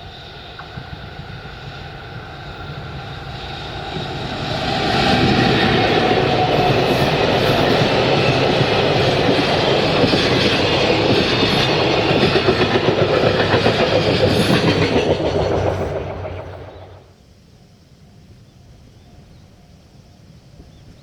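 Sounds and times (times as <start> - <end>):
freight train wheels clattering: 2.1 - 17.1.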